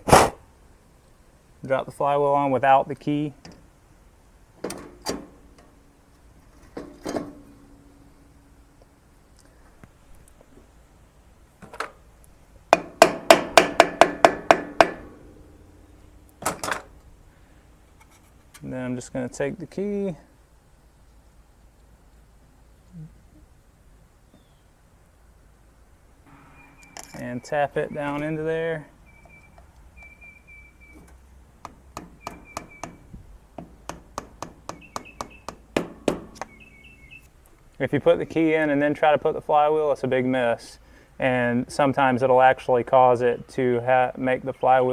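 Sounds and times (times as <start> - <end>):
hammer striking metal: 12.7 - 16.5, 33.9 - 36.5
bird chirping: 24.1 - 24.8, 26.3 - 37.4.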